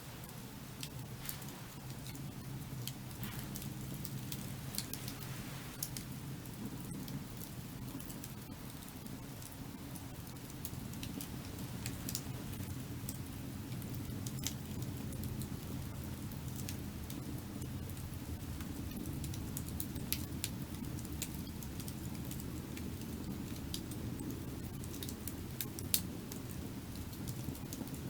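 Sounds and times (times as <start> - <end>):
firewood crackling and popping: 0.0 - 28.0
fire low rush: 0.5 - 6.8.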